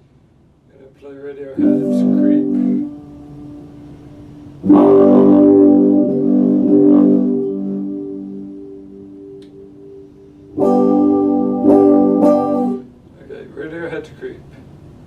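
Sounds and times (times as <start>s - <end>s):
electric guitar chord strummed: 1.6s - 13.0s.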